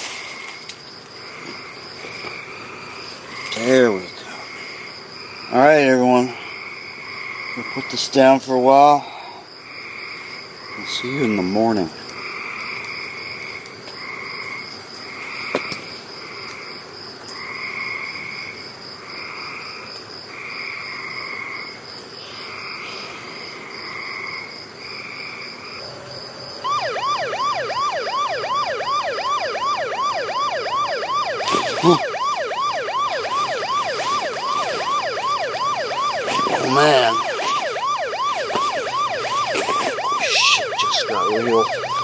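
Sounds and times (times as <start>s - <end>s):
night insects chirping: 0.0s - 42.0s
electronic siren yelping: 26.6s - 42.0s.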